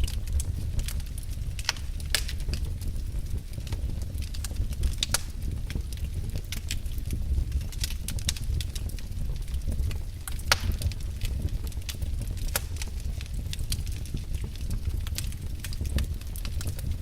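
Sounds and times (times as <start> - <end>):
low fire rumble: 0.0 - 17.0
wood fire crackling and popping: 0.0 - 17.0.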